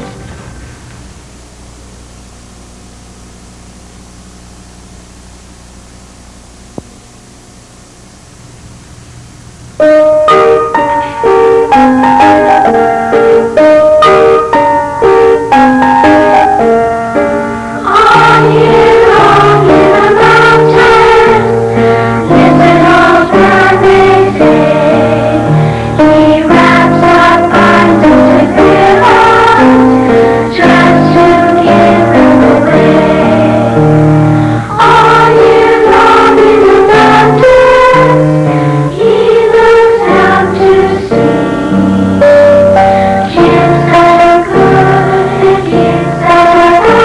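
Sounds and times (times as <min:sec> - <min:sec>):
piano playing: 0:09.8 - 0:47.0
children's choir singing: 0:10.4 - 0:47.0.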